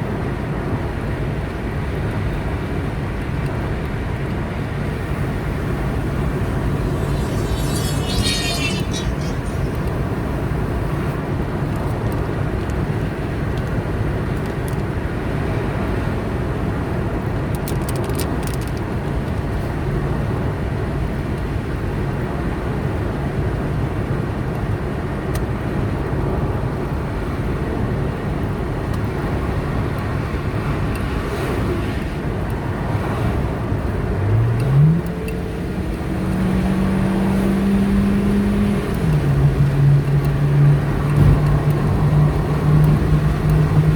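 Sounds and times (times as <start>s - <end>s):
road and tyre noise: 0.0s - 43.9s
car engine: 4.3s - 11.1s, 28.4s - 43.9s.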